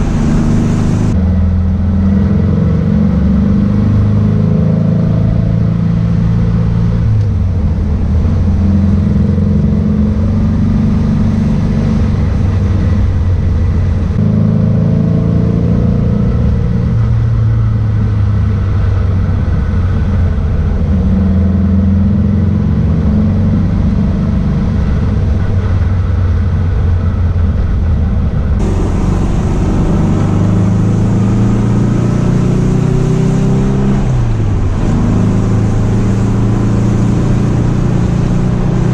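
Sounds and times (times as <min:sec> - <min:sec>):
car engine revving through gears: 0:00.0 - 0:07.4, 0:13.5 - 0:17.1, 0:28.6 - 0:38.9.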